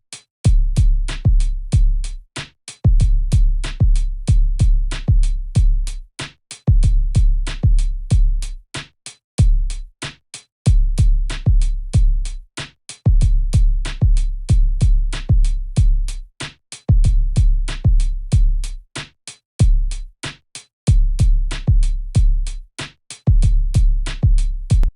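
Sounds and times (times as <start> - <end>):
booming kick drums: 0.5 - 2.0, 2.9 - 5.8, 6.7 - 8.4, 10.7 - 12.2, 13.1 - 16.0, 17.0 - 18.5, 20.9 - 22.5, 23.3 - 24.9.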